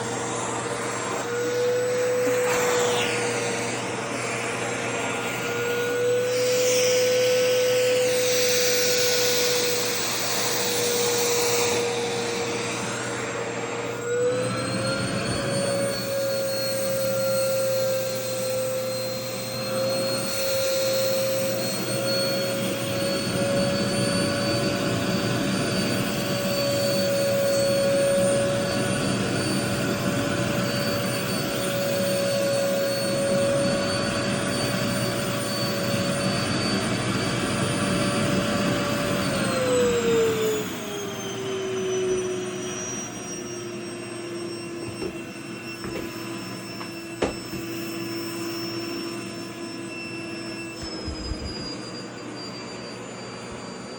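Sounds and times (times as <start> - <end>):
vacuum cleaner motor whine: 0.0 - 53.9.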